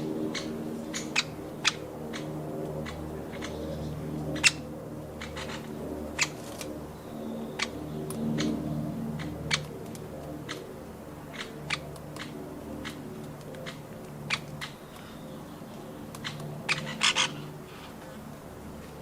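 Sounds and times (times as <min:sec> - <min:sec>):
steady low hum: 0:00.0 - 0:19.0
woodpecker tapping: 0:11.3 - 0:15.1, 0:15.7 - 0:17.3.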